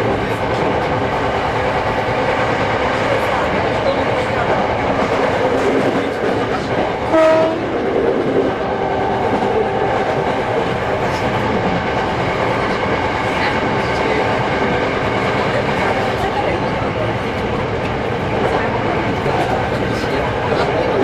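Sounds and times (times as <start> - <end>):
train running: 0.0 - 21.0
train horn blast: 7.1 - 7.8.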